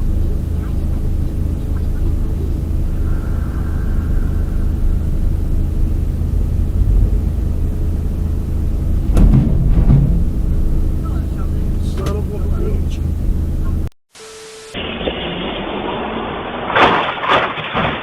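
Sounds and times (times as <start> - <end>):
heavy vehicle engine running: 0.0 - 14.0
sharp bang: 9.0 - 12.6.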